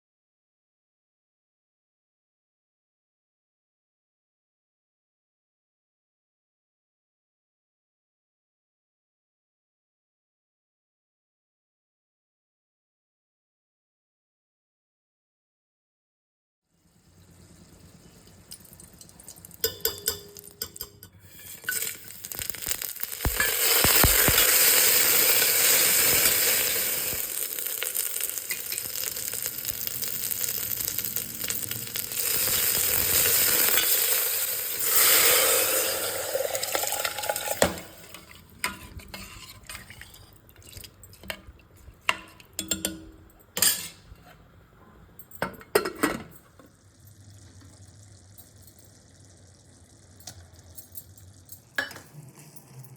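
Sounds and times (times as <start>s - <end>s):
food sizzling in a hot pan: 16.8s - 39.6s
spoon clinking and scraping pan: 18.3s - 44.4s, 50.1s - 52.9s.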